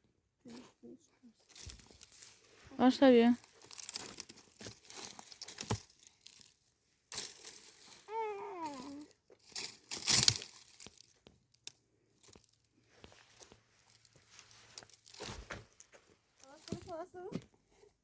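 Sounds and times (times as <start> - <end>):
rustling and crinkling: 0.4 - 18.0
short falling voice-like sound: 8.1 - 9.1.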